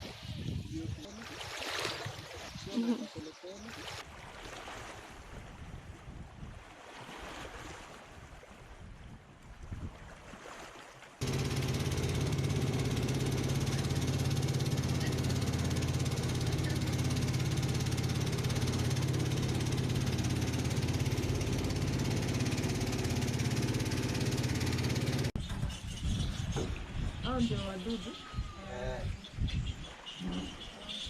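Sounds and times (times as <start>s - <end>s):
engine running steadily: 11.2s - 25.4s.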